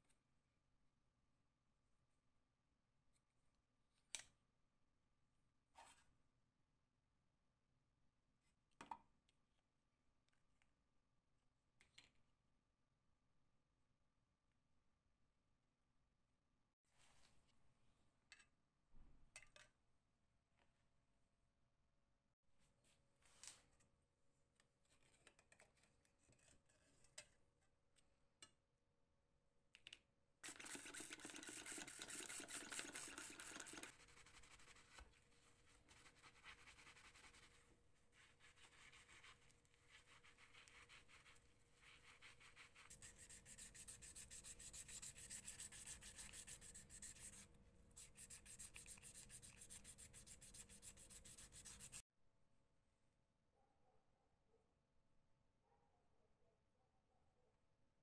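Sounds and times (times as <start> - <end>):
hand sanding: 30.4 - 52.0.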